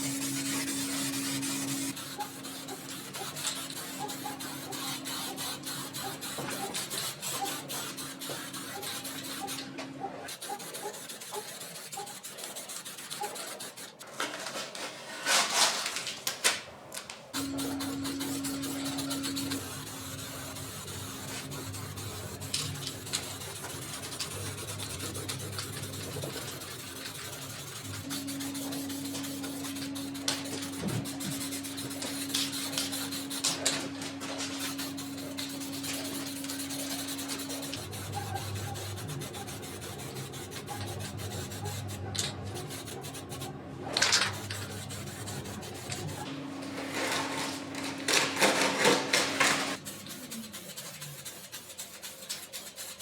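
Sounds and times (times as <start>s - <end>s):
steady hum: 0.0s - 5.9s, 17.4s - 50.1s
scraping on plastic: 10.4s - 53.0s.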